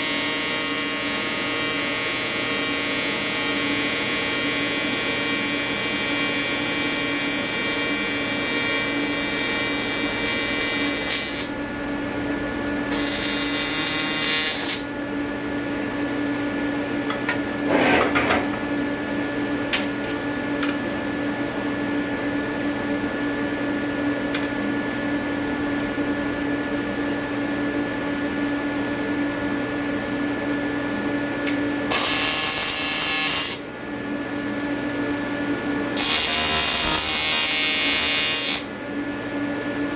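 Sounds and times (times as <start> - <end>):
welding arc buzzing: 0.0 - 11.6, 12.9 - 14.9, 31.5 - 33.7, 36.0 - 38.8.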